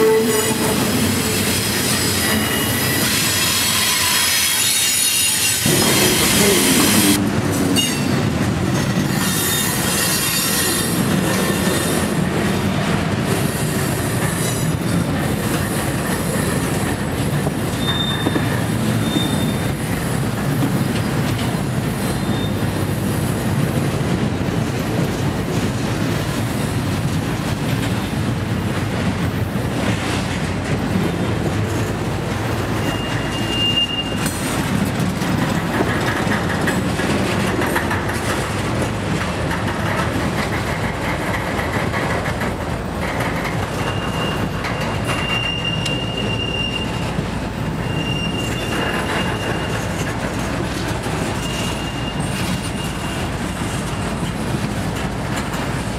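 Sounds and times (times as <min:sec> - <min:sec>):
high wheel squeals: 0:00.0 - 0:07.2, 0:17.7 - 0:20.0, 0:22.0 - 0:22.8, 0:32.7 - 0:34.6, 0:43.6 - 0:50.2, 0:51.1 - 0:54.2
train wheels rumbling on rail: 0:00.0 - 0:55.9.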